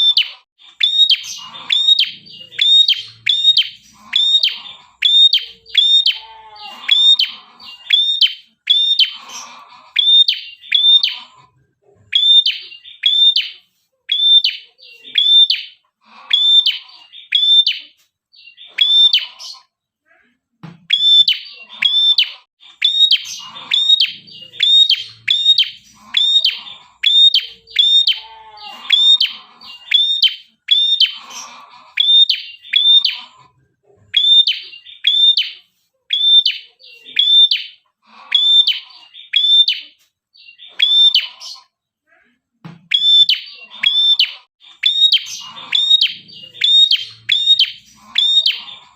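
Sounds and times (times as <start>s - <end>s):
songbird chirping: 0.0s - 19.7s, 20.6s - 33.6s, 42.8s - 48.9s.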